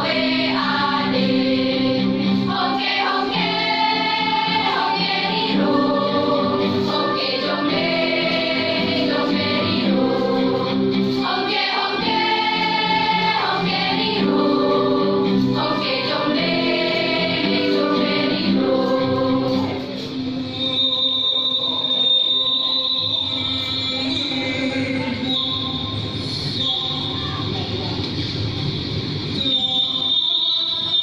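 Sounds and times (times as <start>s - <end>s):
choir singing: 0.0s - 25.3s.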